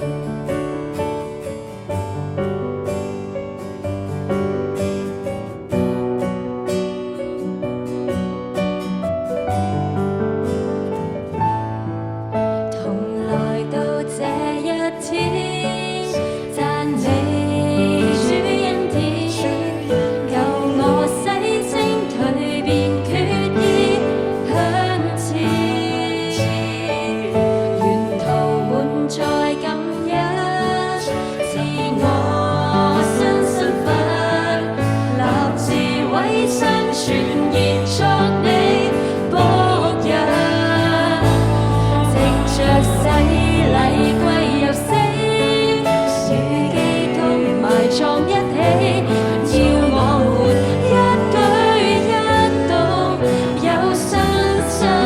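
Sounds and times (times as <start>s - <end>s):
person singing: 12.7s - 55.0s
pop band instrumental: 13.8s - 55.0s
held bass notes: 39.4s - 45.2s.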